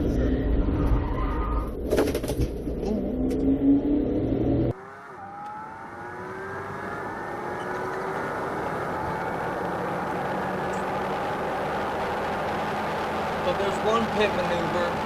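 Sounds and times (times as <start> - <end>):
loud low road noise: 3.2 - 15.0
car engine accelerating hard: 3.3 - 15.0.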